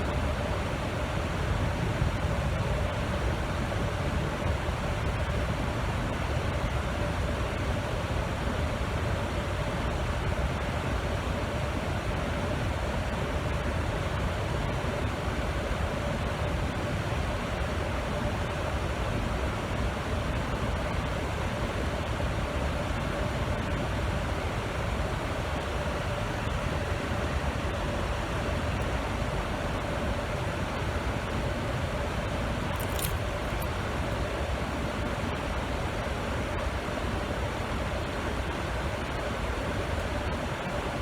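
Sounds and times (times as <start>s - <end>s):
fan blowing air: 0.0s - 41.0s
constant hum: 17.7s - 41.0s.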